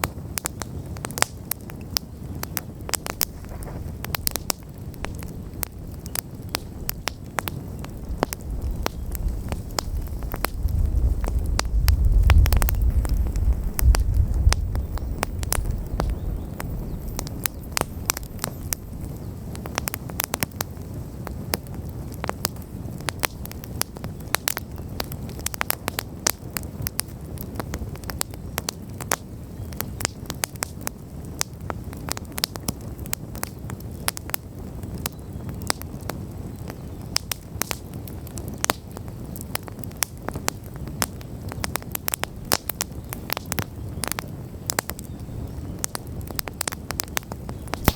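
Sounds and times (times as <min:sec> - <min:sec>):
campfire crackling and popping: 0:00.0 - 0:47.9
low rush of flame: 0:00.1 - 0:47.9
low rumble: 0:08.0 - 0:19.7.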